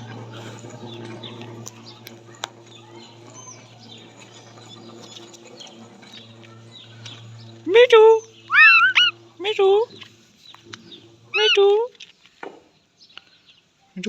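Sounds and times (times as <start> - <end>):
low hum: 0.0 - 12.1
high bird chirps: 1.0 - 11.9.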